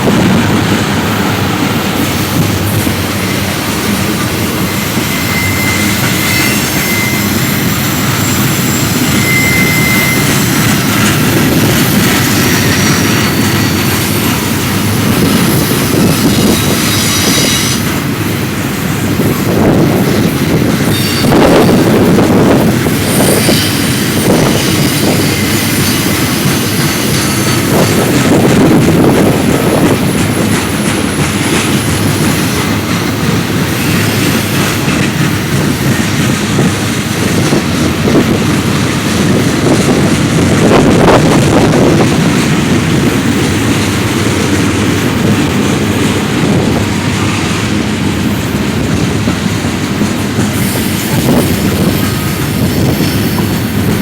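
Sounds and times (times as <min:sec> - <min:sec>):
train wheels clacking over rail joints: 0:00.0 - 0:54.0
high wheel squeal: 0:01.1 - 0:18.4, 0:19.5 - 0:36.7, 0:50.4 - 0:53.9.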